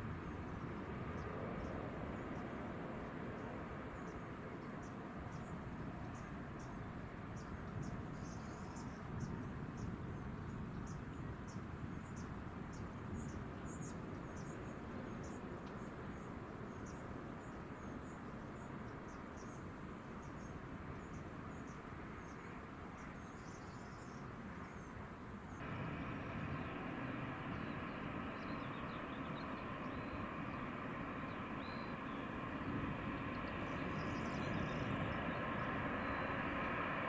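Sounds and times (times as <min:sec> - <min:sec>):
low outdoor rumble: 0:25.3 - 0:37.0
insects chirping: 0:25.5 - 0:36.8
steady mechanical hum: 0:25.5 - 0:37.0.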